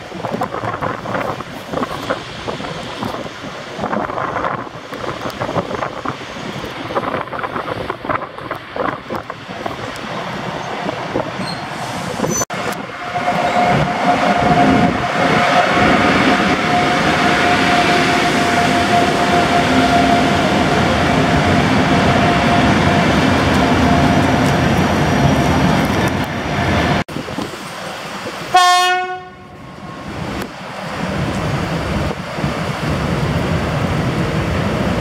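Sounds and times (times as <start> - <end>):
electric locomotive passing: 0.0 - 35.0
train coaches rumbling: 0.0 - 35.0.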